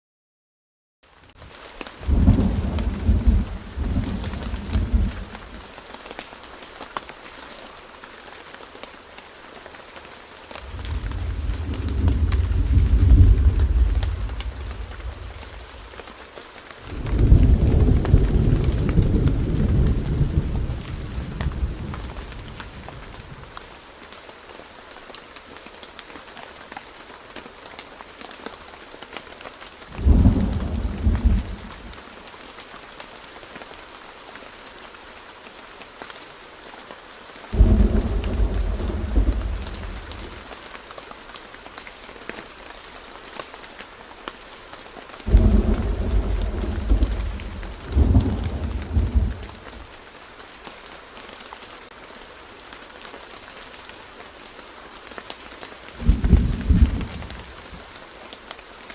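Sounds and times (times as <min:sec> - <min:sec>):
rain hiss: 0:01.1 - 0:58.9
low rolls of thunder: 0:02.0 - 0:05.6, 0:10.6 - 0:16.0, 0:16.8 - 0:23.5, 0:29.9 - 0:32.0, 0:37.6 - 0:40.5, 0:45.3 - 0:49.9, 0:56.0 - 0:57.8.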